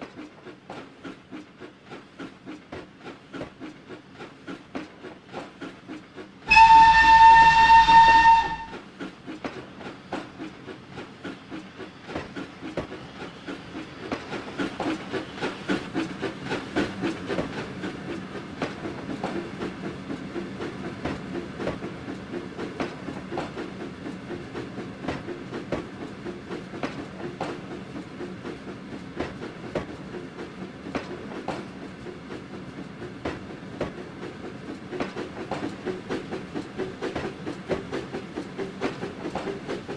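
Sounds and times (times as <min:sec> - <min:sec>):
steam locomotive whistle: 0:06.5 - 0:08.8
train rhythmic running beat: 0:06.5 - 0:08.8, 0:17.3 - 0:39.9.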